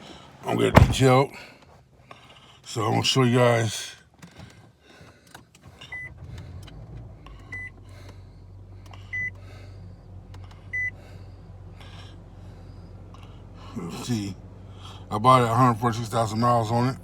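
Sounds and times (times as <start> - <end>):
low car hum: 0.0 - 3.2, 4.0 - 17.0
car warning chime beeping: 7.5 - 7.8, 9.1 - 9.4, 10.7 - 11.0.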